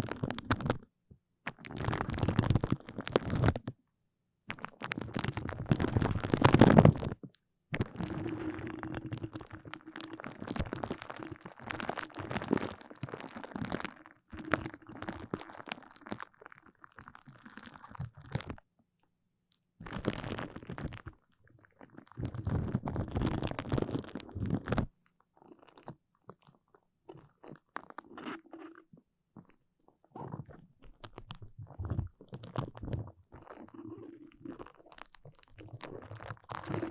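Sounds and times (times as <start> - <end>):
sticky surface crackly clicks: 30.5 - 36.9.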